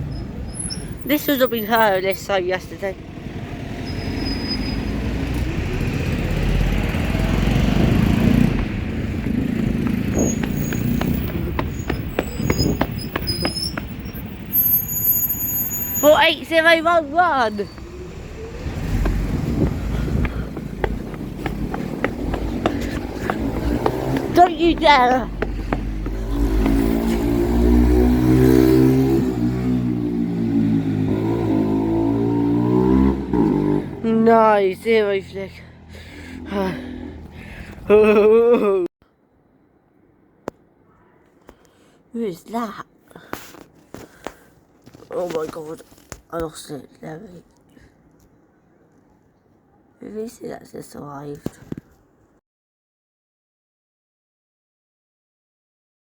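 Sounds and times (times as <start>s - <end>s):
short high squeaks: 0.0s - 2.1s, 3.8s - 4.9s, 10.1s - 11.0s, 11.7s - 16.2s
road vehicle passing: 0.0s - 37.9s.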